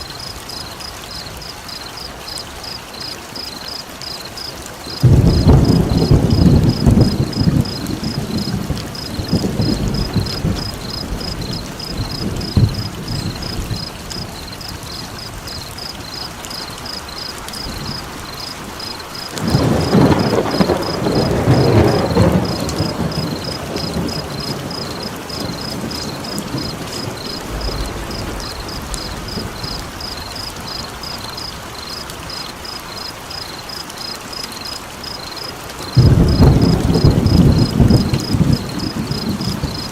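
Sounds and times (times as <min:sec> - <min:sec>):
steady rain: 0:00.0 - 0:39.9
rolling thunder: 0:04.9 - 0:16.7, 0:17.6 - 0:31.7, 0:35.9 - 0:39.9.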